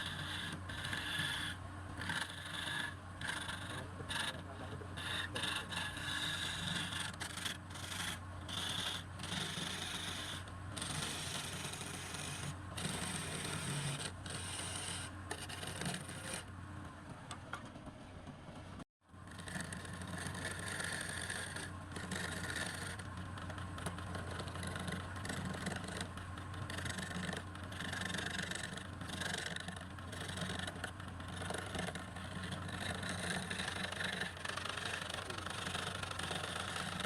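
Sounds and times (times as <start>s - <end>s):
lathe motor hum: 0.0s - 16.4s
tool scraping spinning wood: 0.0s - 16.5s, 19.2s - 37.0s.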